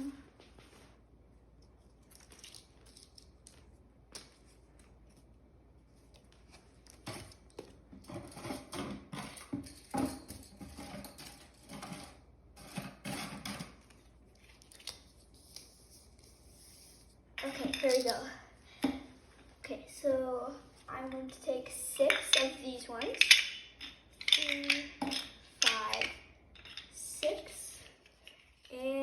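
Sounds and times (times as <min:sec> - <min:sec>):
plastic pieces clicking and knocking: 0:22.0 - 0:27.0.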